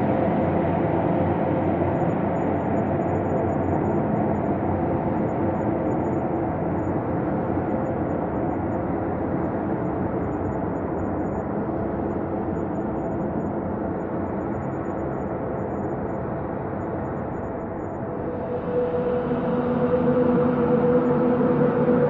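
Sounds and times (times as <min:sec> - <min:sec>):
dark synthesized drone: 0:16.5 - 0:22.0.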